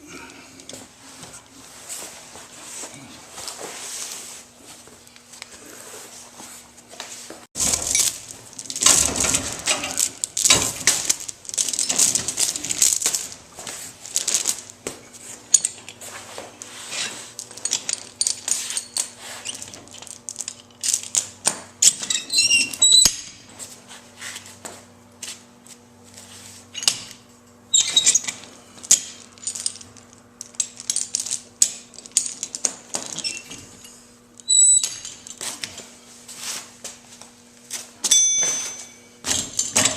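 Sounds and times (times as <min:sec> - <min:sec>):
steel chain clinking and rattling: 0:07.6 - 0:14.8, 0:17.3 - 0:23.4, 0:27.7 - 0:35.8, 0:38.0 - 0:39.9.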